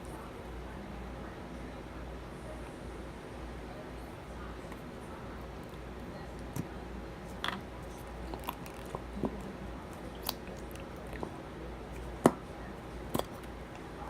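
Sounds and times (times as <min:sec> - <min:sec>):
low steady hum: 0:00.0 - 0:14.0
slime wet clicks and crackles: 0:08.2 - 0:11.3.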